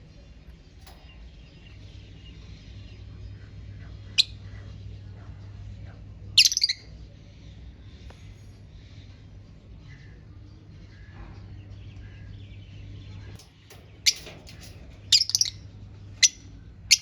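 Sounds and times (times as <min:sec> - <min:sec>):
low steady hum: 0:00.0 - 0:17.0
lovebirds chirping shrilly: 0:13.9 - 0:15.6.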